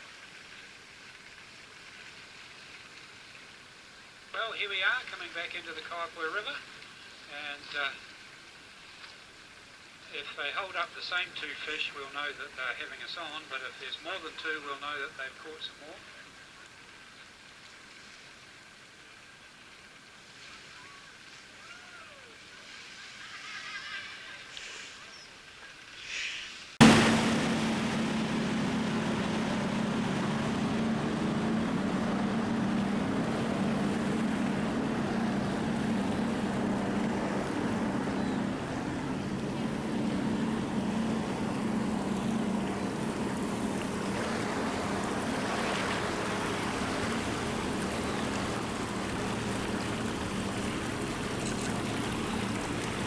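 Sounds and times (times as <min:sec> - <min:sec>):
boat engine droning: 0:26.8 - 0:53.0
wind and water rushing: 0:26.8 - 0:53.0.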